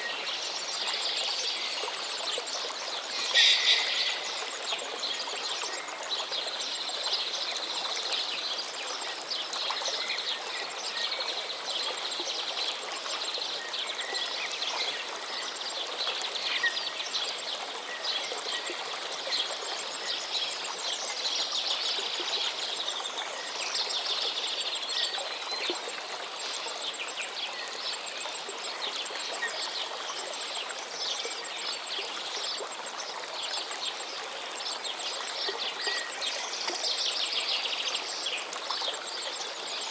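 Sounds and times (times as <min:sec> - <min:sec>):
small birds chirping: 0:02.9 - 0:05.9
steady hiss: 0:03.0 - 0:05.2.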